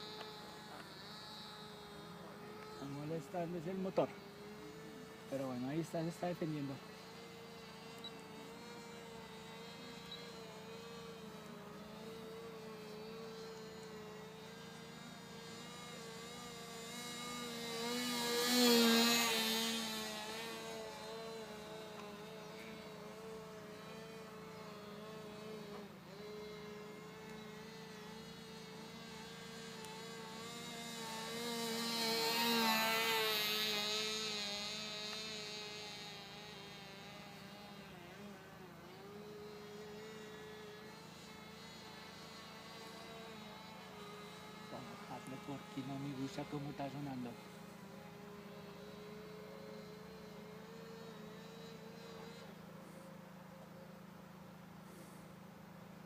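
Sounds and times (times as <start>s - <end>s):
model plane engine buzzing: 0.0s - 56.0s.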